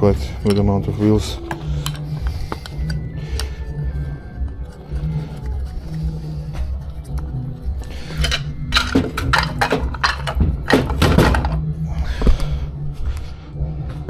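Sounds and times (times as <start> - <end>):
metal parts knocking and clattering: 0.1 - 3.5, 8.1 - 11.6.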